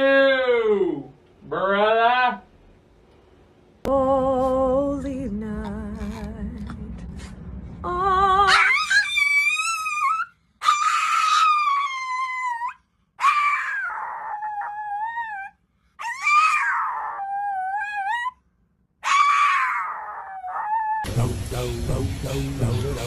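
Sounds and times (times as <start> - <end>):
dog howling: 8.4 - 18.4, 19.0 - 21.1.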